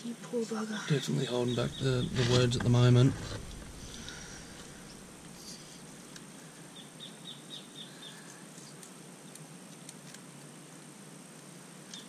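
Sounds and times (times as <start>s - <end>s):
faint outdoor background: 0.0s - 12.0s
bird chirping: 0.8s - 6.1s, 6.7s - 8.3s.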